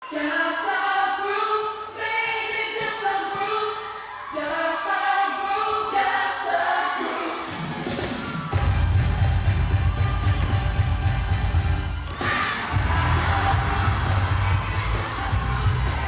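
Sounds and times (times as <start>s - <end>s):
choir singing held notes: 11.9s - 16.0s.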